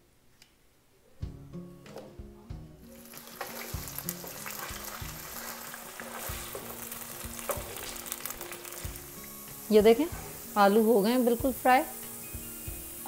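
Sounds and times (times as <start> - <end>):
background music with low beat: 1.2 - 13.0
potatoes frying in hot oil: 2.8 - 13.0
wooden spatula stirring: 3.0 - 9.1.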